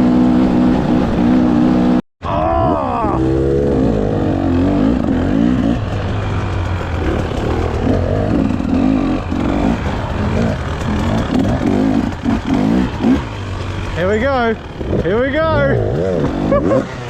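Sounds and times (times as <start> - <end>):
engine revving: 0.0 - 2.0, 3.0 - 17.0
low rumble: 3.1 - 16.5.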